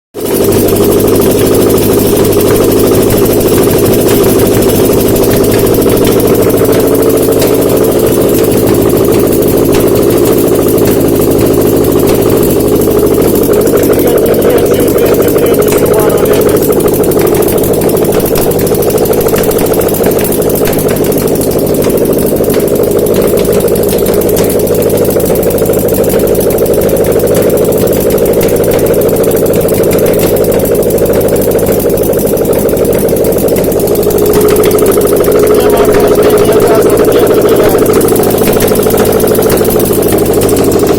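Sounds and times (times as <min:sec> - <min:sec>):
engine running steadily: 0:00.2 - 0:40.9.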